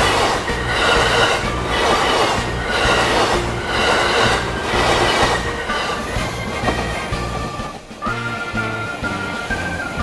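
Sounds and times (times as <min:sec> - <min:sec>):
electric train motor tones: 0:00.0 - 0:10.0
train wheels on rails: 0:00.0 - 0:10.0.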